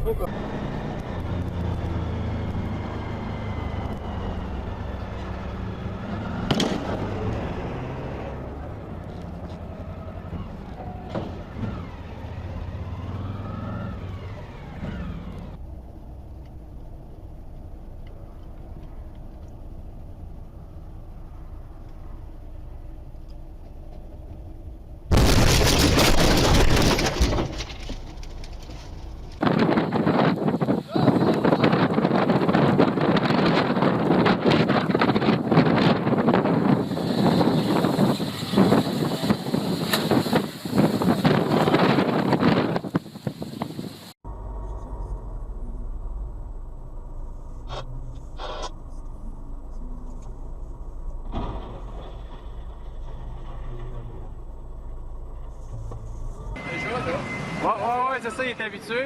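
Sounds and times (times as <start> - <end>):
loud crash: 25.1 - 29.0
vehicle engine running: 43.4 - 56.6
low rumble: 44.2 - 56.6.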